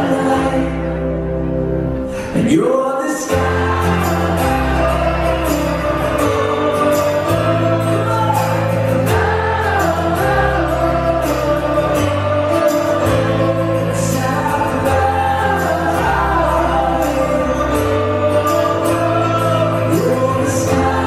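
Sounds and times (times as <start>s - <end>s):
bass notes: 0.0s - 2.3s, 3.3s - 21.0s
person singing: 0.0s - 21.0s.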